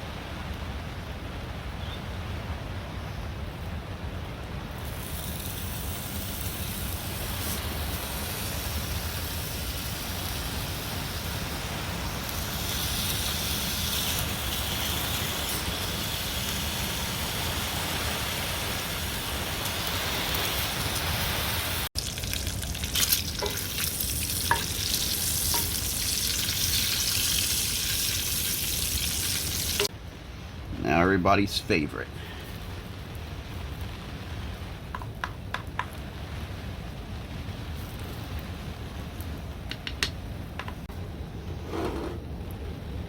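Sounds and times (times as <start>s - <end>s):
food sizzling in a pan: 4.7s - 29.9s.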